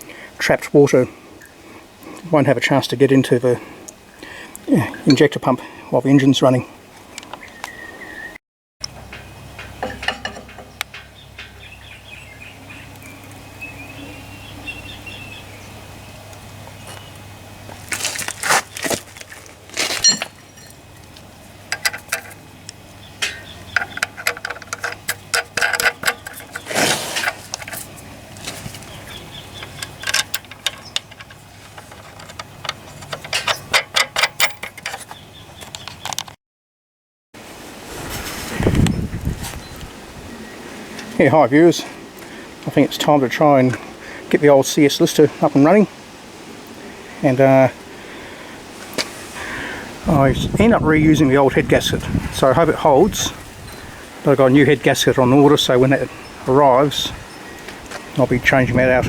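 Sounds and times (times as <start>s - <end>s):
bird chirping: 7.2s - 8.4s, 9.6s - 17.2s, 22.6s - 24.2s, 27.9s - 32.6s, 35.0s - 36.2s
low steady hum: 8.8s - 35.0s
small tools and parts clicking: 21.7s - 22.4s, 23.2s - 27.9s, 28.5s - 36.3s.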